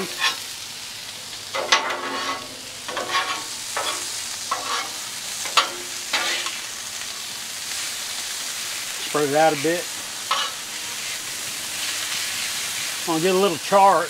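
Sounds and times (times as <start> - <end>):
corn sizzling on a griddle: 0.0 - 14.0
metal spatulas scraping griddle: 0.1 - 0.4, 1.6 - 6.6, 10.3 - 11.2.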